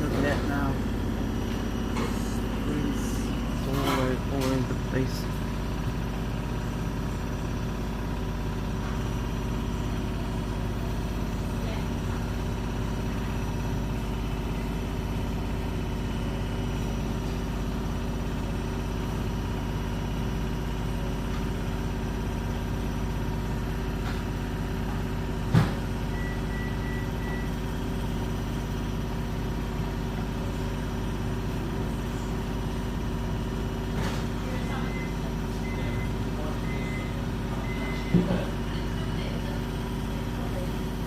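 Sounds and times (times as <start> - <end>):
washing machine spinning: 0.0 - 41.0.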